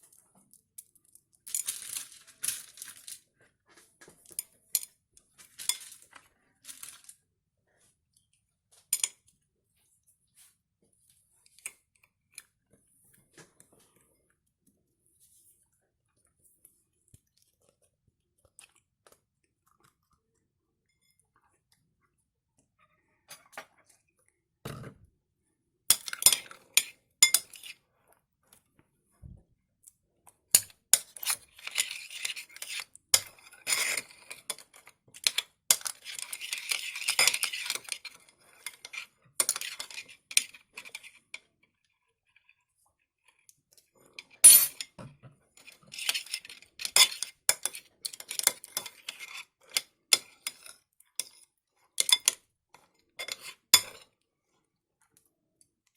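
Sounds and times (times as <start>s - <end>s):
utensil clinking against a bowl: 25.9s - 27.7s, 30.6s - 41.4s, 45.6s - 51.4s, 52.0s - 52.4s, 53.2s - 54.1s.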